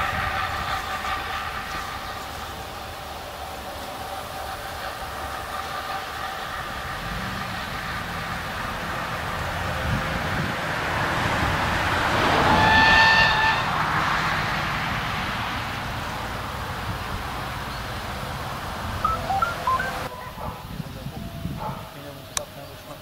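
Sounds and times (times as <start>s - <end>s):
train horn blast: 0.0s - 10.4s, 12.1s - 14.4s
diesel train engine and rail noise: 0.0s - 23.0s
short chirps: 19.1s - 20.3s.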